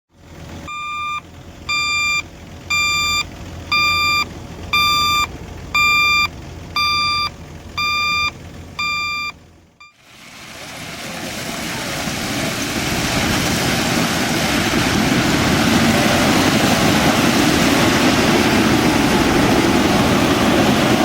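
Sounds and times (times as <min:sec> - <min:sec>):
diesel engine rumble: 0:00.1 - 0:21.0
reversing alarm beeping: 0:00.7 - 0:10.0.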